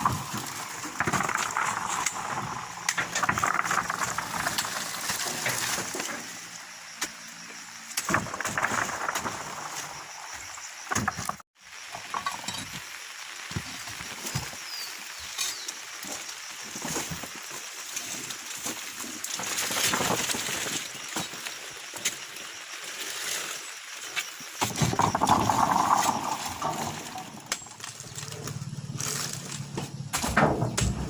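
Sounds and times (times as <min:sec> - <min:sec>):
steady hiss: 0:11.6 - 0:27.9
fruit bunches thudding onto truck: 0:29.6 - 0:31.0.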